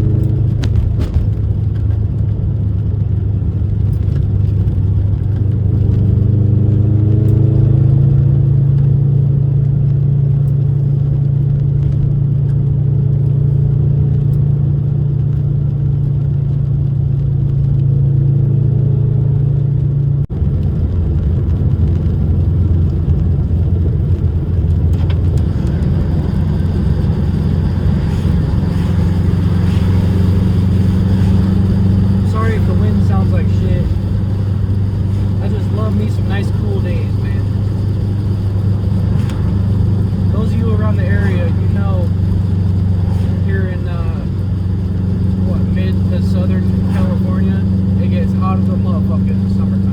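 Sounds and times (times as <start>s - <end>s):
car engine pulling: 0.0s - 49.9s
road noise: 0.0s - 49.9s.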